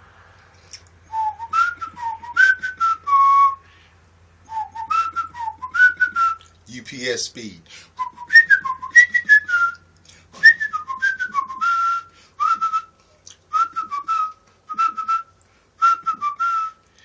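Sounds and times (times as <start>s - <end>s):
person whistling a tune: 1.1s - 3.7s, 4.5s - 6.5s, 8.0s - 9.8s, 10.4s - 16.8s.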